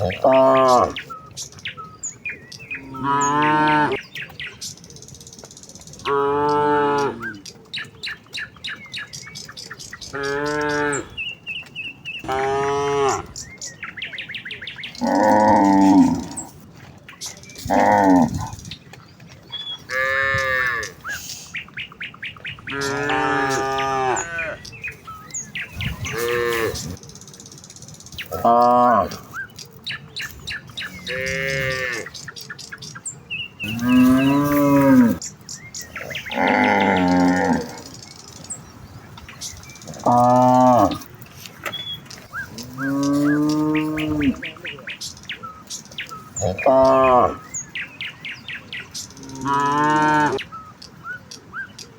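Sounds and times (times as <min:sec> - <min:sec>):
cattle mooing: 0:00.0 - 0:01.0, 0:10.1 - 0:11.2, 0:12.2 - 0:13.4, 0:15.0 - 0:16.5, 0:19.9 - 0:20.9, 0:22.7 - 0:24.6, 0:26.0 - 0:26.9, 0:31.0 - 0:32.1, 0:33.6 - 0:35.2, 0:36.2 - 0:37.9, 0:39.9 - 0:41.1, 0:42.5 - 0:44.7, 0:46.4 - 0:47.4, 0:49.2 - 0:50.4.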